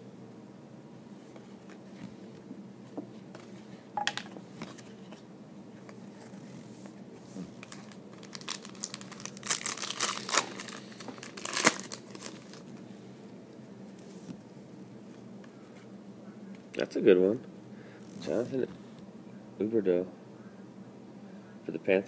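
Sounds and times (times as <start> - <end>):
foil wrapper crinkling: 7.5 - 12.7.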